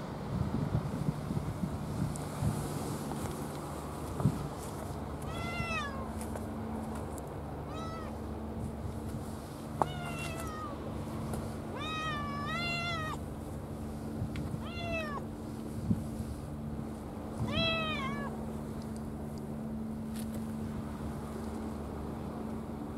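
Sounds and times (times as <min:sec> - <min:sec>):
steady low hum: 0:00.0 - 0:22.9
cat meowing: 0:05.3 - 0:06.1, 0:07.7 - 0:08.2, 0:09.8 - 0:10.8, 0:11.8 - 0:13.2, 0:14.6 - 0:15.2, 0:17.4 - 0:18.4.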